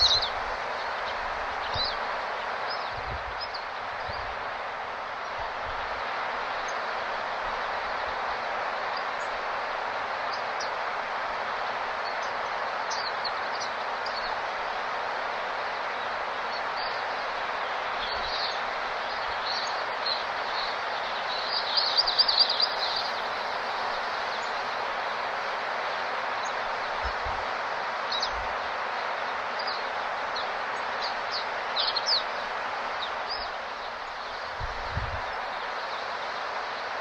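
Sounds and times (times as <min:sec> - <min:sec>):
rapid bird twittering: 0:00.0 - 0:02.1, 0:18.0 - 0:24.8
small birds chirping: 0:00.0 - 0:04.4, 0:12.0 - 0:14.4, 0:16.5 - 0:27.3, 0:29.2 - 0:37.0
steady rushing noise: 0:00.0 - 0:37.0.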